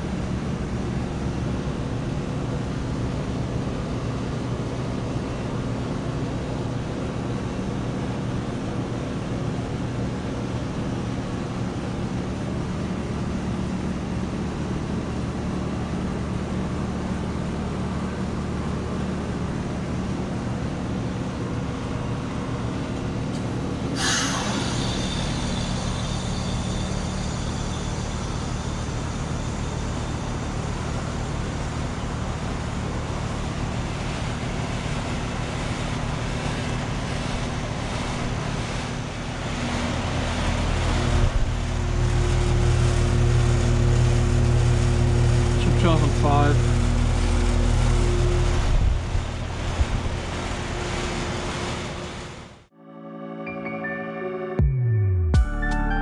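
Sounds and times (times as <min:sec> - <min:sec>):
heat pump compressor and fan hum: 0:00.0 - 0:52.7
high whine: 0:21.7 - 0:56.0
sudden loud hiss: 0:24.0 - 0:30.2.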